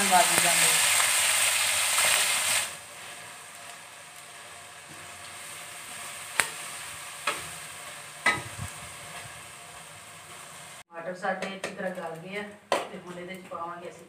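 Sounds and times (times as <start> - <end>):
vegetables sizzling in oil: 0.0 - 10.9.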